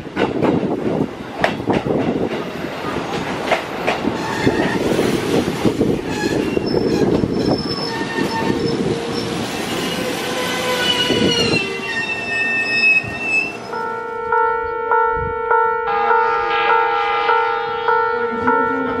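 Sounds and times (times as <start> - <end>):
train rumble and wheel clatter: 0.0 - 19.0
high brake squealing: 6.0 - 13.8.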